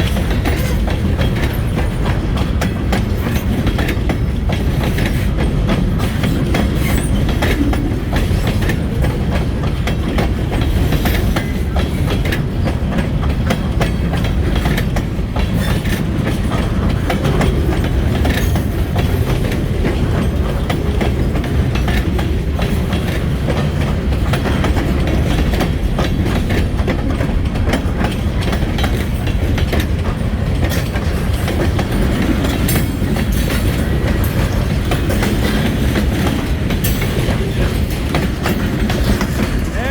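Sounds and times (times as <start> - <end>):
freight train rumbling past: 0.0 - 39.9
wheels clicking over rail joints: 0.0 - 39.9.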